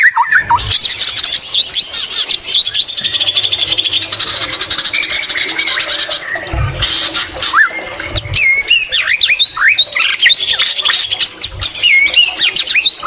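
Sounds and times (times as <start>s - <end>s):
songbird singing whistles and trills: 0.0s - 3.4s, 7.5s - 13.0s.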